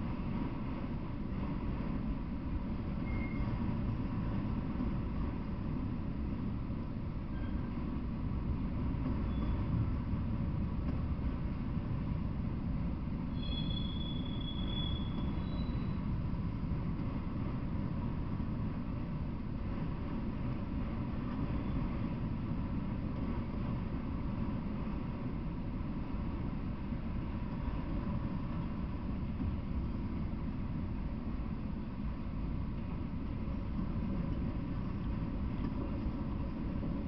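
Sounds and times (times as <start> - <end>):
train wheels rumbling on rails: 0.0 - 37.0
thin high squeal: 3.0 - 3.6, 13.3 - 16.1.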